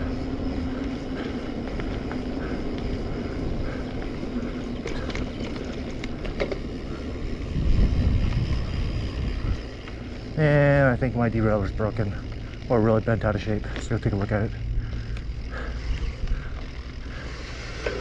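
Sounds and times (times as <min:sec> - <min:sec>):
wind buffeting microphone: 0:00.0 - 0:10.4
mountain bike rumble: 0:00.0 - 0:18.0.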